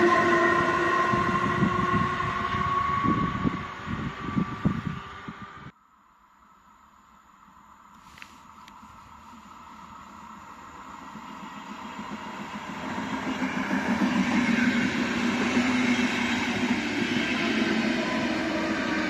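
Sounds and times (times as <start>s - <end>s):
train wheels on rails: 7.5s - 19.0s.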